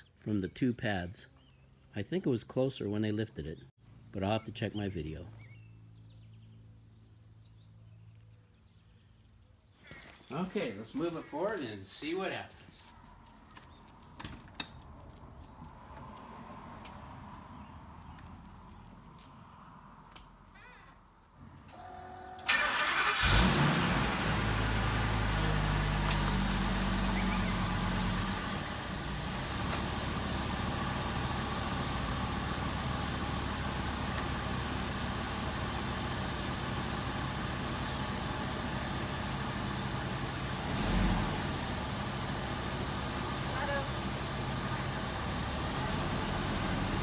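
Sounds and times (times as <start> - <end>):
engine starting and idling: 21.7 - 47.0.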